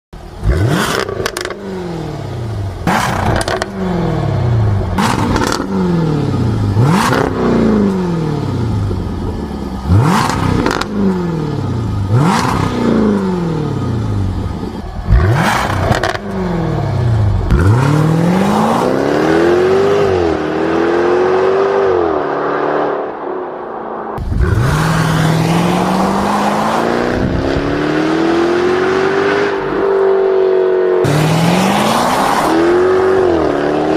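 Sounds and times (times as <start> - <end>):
engine revving: 0.3 - 23.2, 24.2 - 33.9
exhaust crackles and pops: 2.8 - 3.8.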